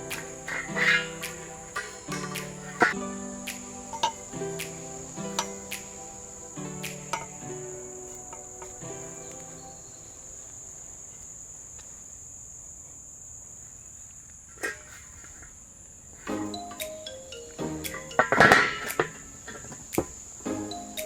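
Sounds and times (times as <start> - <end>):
soft background music: 0.0 - 11.0, 16.3 - 21.0
high-pitched insect trill: 0.0 - 14.0.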